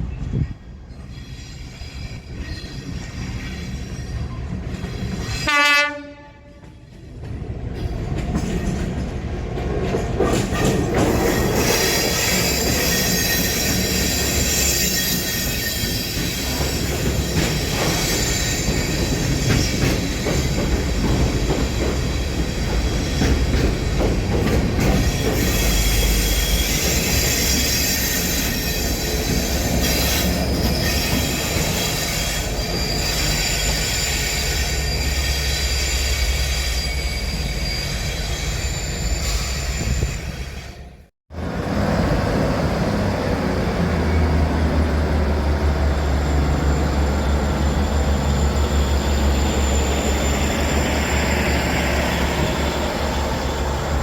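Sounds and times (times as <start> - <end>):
train cars rumbling on rails: 0.0 - 54.0
high-pitched wheel squeal: 11.2 - 20.7, 25.0 - 40.9, 46.0 - 54.0.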